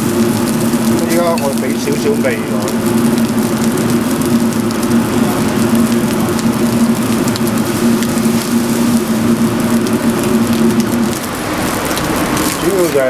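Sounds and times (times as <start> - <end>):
rice sizzling in a wok: 0.0 - 13.0
steady hum: 0.0 - 13.0.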